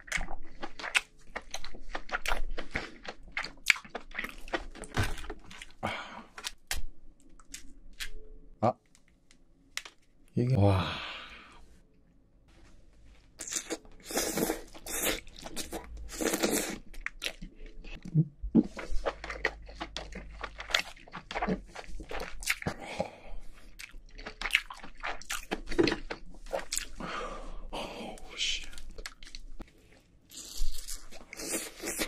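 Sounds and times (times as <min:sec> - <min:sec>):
chewing with wet mouth clicks: 0:00.0 - 0:05.8, 0:13.4 - 0:22.8, 0:23.6 - 0:27.0, 0:28.6 - 0:29.6.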